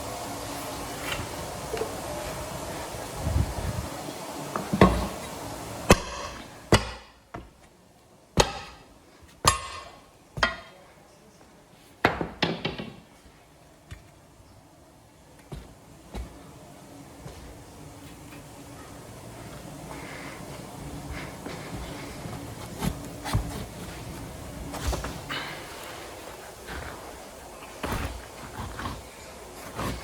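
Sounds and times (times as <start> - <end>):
steady background noise: 0.0 - 30.0
hammer striking metal: 8.4 - 8.8, 9.5 - 10.7.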